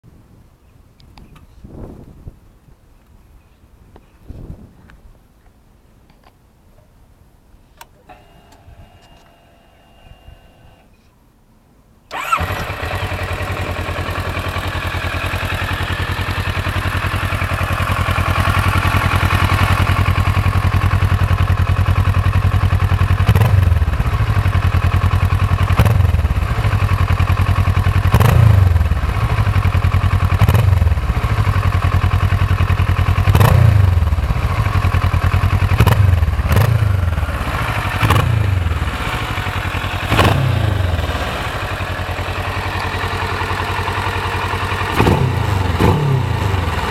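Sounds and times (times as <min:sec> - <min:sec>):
motorcycle engine idling: 0:12.1 - 0:46.9
motorcycle engine revving: 0:12.1 - 0:46.9.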